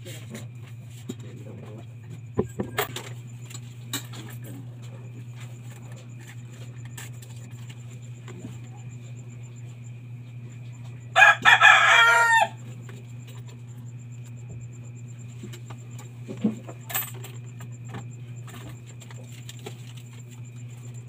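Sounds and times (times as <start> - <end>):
steady low hum: 0.0 - 21.0
rooster crowing: 11.1 - 12.7.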